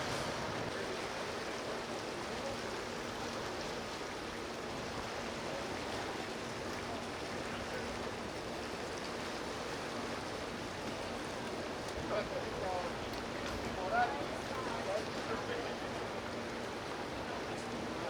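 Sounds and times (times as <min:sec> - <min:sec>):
water rushing: 0:00.0 - 0:03.2
wind: 0:00.0 - 0:18.0.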